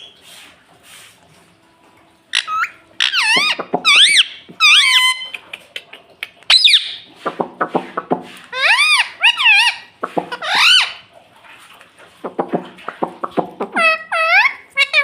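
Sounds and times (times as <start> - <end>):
parakeet squeaky calls: 2.3 - 5.3, 6.5 - 7.1, 8.5 - 11.0, 13.6 - 15.0.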